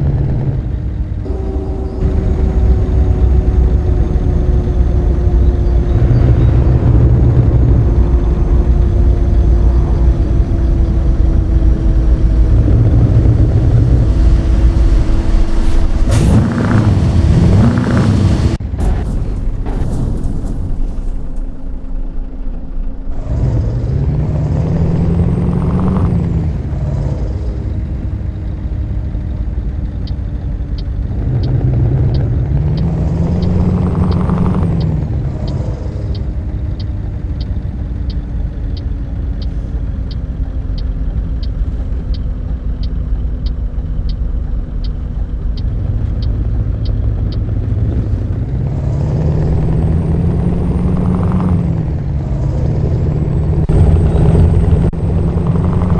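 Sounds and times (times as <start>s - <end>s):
diesel truck engine revving: 0.0s - 19.1s, 20.0s - 55.9s
regular ticking: 30.0s - 49.8s.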